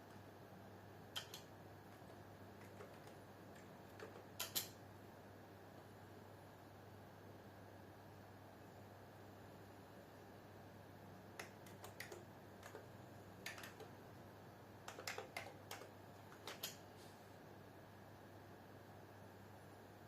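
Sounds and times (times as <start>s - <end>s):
faint steady hum: 0.0s - 20.0s
keyboard typing clicks: 1.1s - 4.8s, 11.4s - 13.9s, 14.8s - 16.8s.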